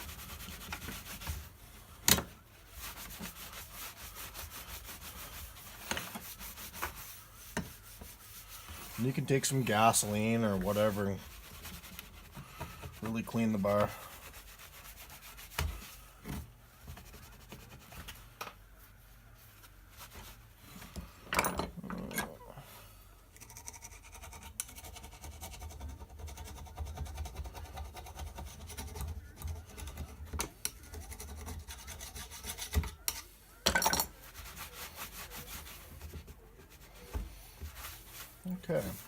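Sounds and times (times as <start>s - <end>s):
rubbing and scraping steel bar: 0.0s - 16.0s.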